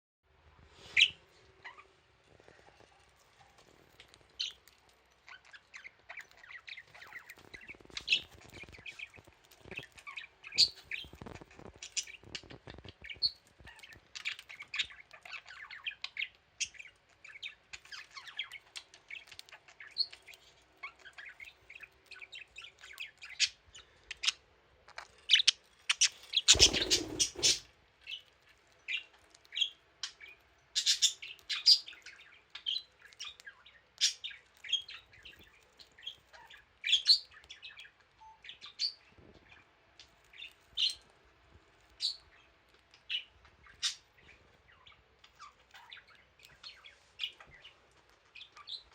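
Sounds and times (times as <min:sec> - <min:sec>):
budgie chirping: 0:25.3 - 0:27.6.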